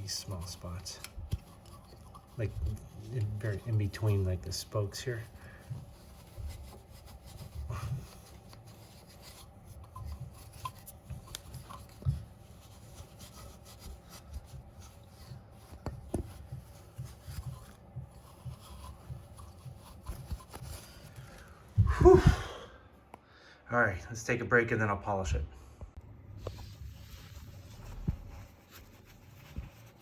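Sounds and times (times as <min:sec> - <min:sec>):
scrubbing metal wheel rim: 0:00.0 - 0:21.4.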